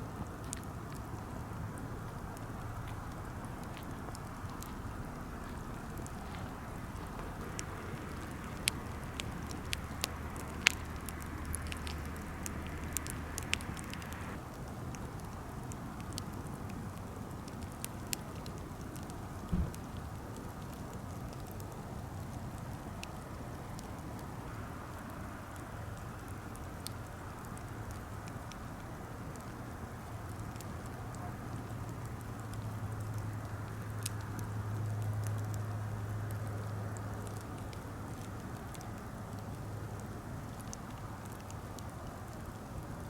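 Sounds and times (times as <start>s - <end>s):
steady hiss: 0.0s - 14.5s
campfire crackling: 0.0s - 43.0s
fire popping: 0.0s - 43.0s
low thump: 19.5s - 19.8s.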